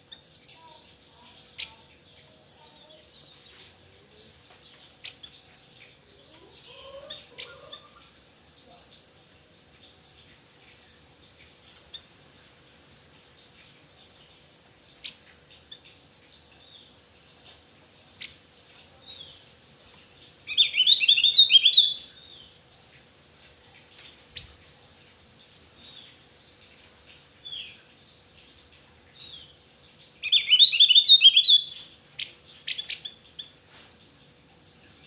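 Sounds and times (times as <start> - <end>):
bird singing high chirps: 20.5 - 22.4, 30.2 - 31.9.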